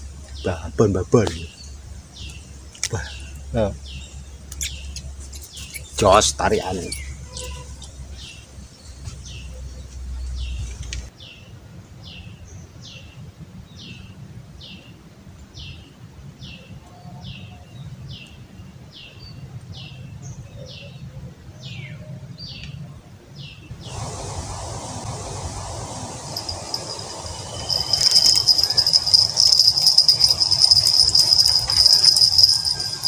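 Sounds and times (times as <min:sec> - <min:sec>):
bird calling: 0:26.0 - 0:33.0.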